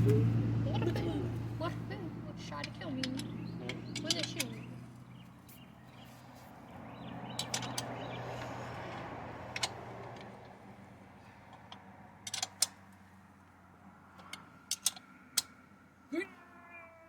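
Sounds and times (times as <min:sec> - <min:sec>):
metal tools clinking: 0:02.4 - 0:04.7, 0:07.4 - 0:08.5.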